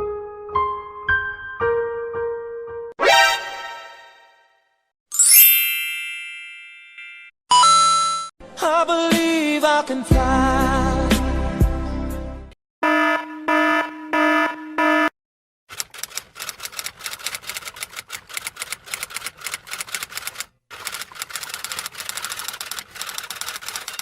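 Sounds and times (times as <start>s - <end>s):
fast typing clicks: 15.7s - 24.0s.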